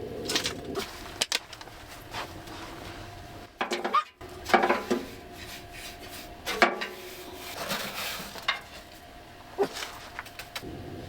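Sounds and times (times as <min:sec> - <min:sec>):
faint steady hum: 0:00.0 - 0:11.0
rustling: 0:00.2 - 0:03.1.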